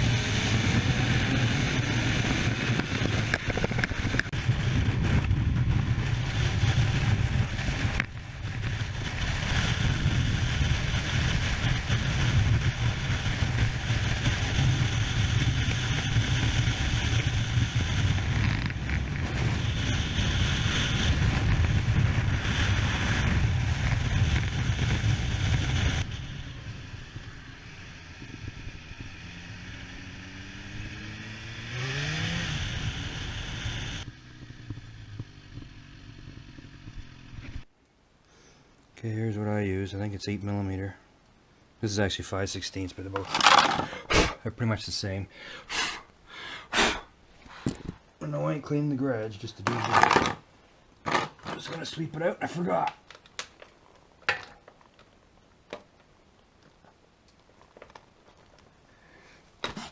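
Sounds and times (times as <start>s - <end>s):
wind noise: 0.0s - 35.0s
motorcycle engine running: 0.0s - 37.7s.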